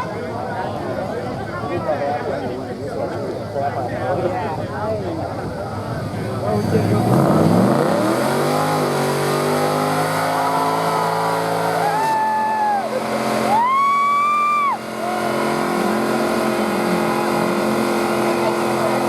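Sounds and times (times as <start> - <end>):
car engine at high revs: 5.7 - 19.0.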